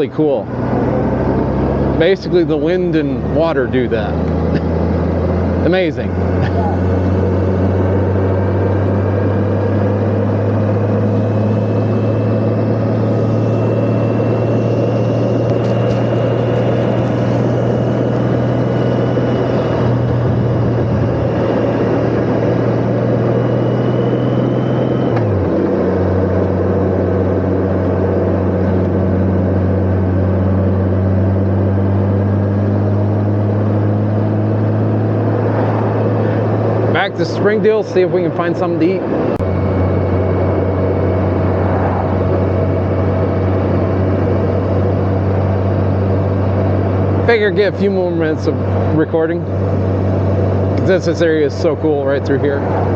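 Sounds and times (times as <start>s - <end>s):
thin high whine: 0.0s - 30.4s, 33.6s - 52.9s
motorcycle engine cruising: 0.0s - 52.9s
road and wind noise: 0.0s - 52.9s.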